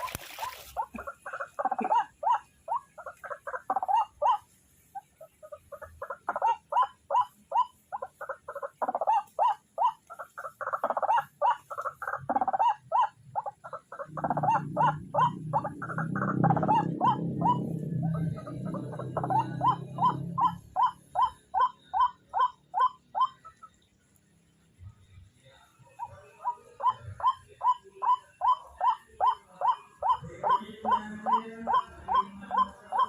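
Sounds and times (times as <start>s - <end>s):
bird harsh calls: 0.0s - 23.8s, 25.9s - 33.0s
low rumbling noise: 13.8s - 21.2s.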